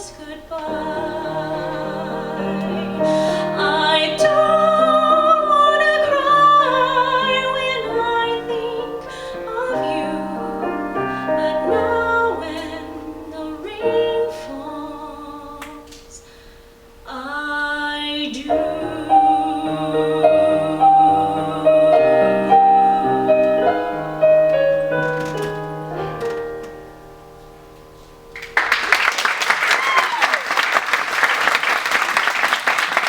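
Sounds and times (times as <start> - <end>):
woman singing: 0.0 - 16.3, 17.0 - 24.4
piano accompaniment: 0.0 - 29.1.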